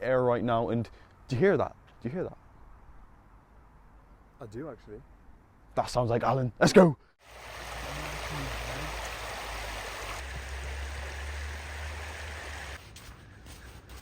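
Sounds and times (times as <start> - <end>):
sea surf rushing on a beach: 7.2 - 12.8.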